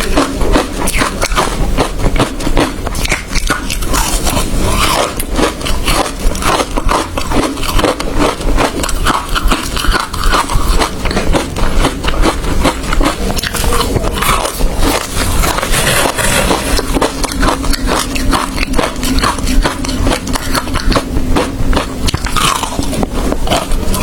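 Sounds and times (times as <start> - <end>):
ice being chewed and crunched: 0.0 - 24.0.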